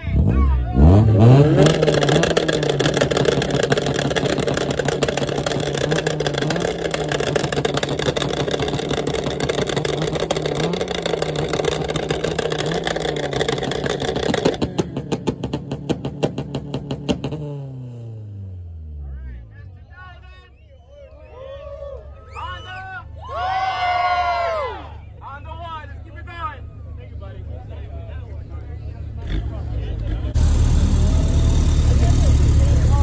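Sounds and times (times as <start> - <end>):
engine revving high: 0.0 - 18.8, 29.2 - 33.0.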